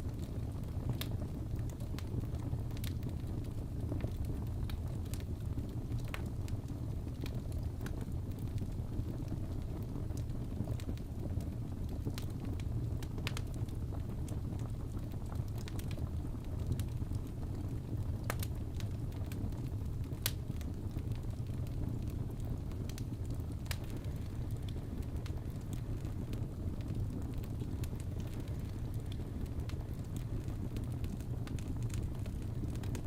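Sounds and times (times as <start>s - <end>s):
fireplace crackling and popping: 0.0s - 33.0s.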